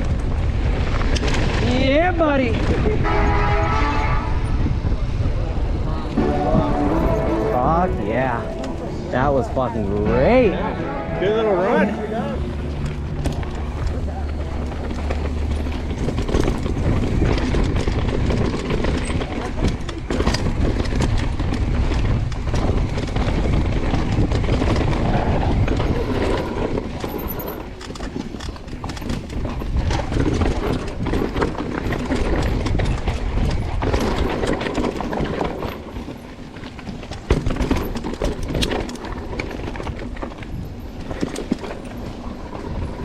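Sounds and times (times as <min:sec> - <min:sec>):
wind on microphone: 0:00.0 - 0:09.7, 0:12.5 - 0:36.2
bike rattling over rough trail: 0:00.0 - 0:43.0.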